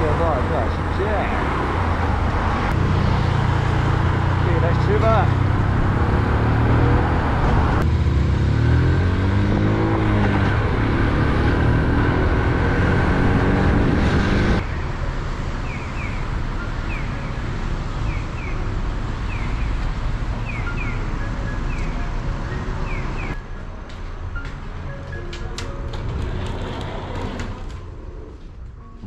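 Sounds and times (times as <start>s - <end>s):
road and wind noise: 0.0s - 29.0s
traffic background: 0.0s - 29.0s
motorcycle engine accelerating: 2.7s - 14.6s.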